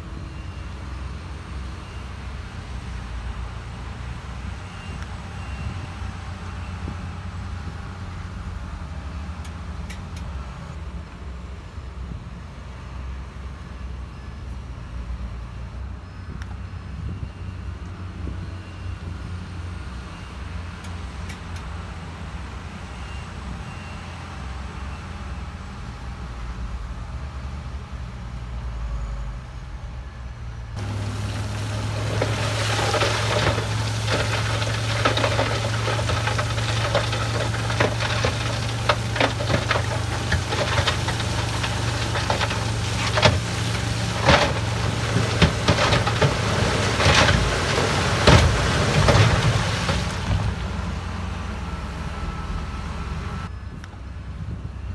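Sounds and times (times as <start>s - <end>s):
heavy diesel engine running: 30.8s - 54.9s.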